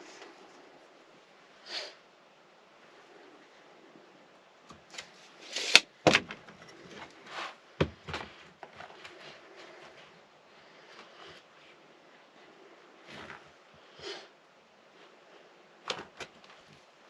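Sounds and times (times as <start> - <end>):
scraping and rustling of sheet: 4.8 - 14.0.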